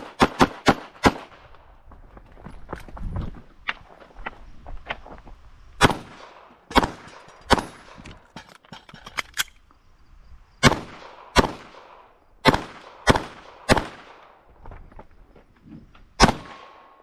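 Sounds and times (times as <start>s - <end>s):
loud handgun shots: 0.0s - 1.4s, 5.8s - 8.0s, 10.6s - 14.2s, 16.2s - 16.9s.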